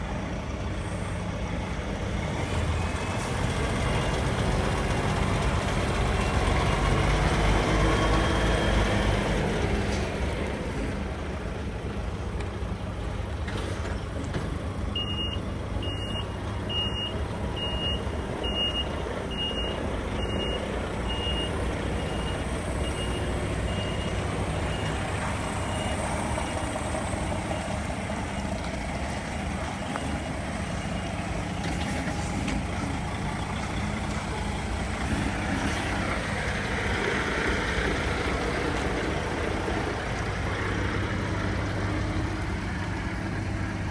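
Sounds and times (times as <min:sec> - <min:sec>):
truck diesel engine running: 0:00.0 - 0:43.9
reversing alarm beeping: 0:15.0 - 0:26.8.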